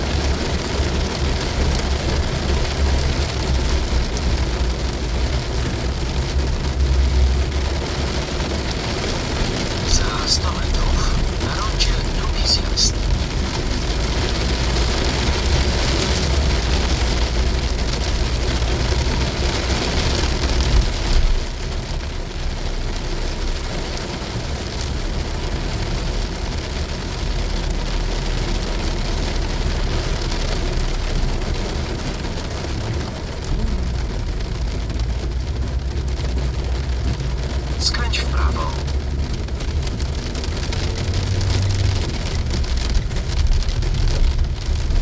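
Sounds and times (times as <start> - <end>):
heavy rain beating on a car: 0.0 - 45.0
road and engine rumble: 0.0 - 45.0.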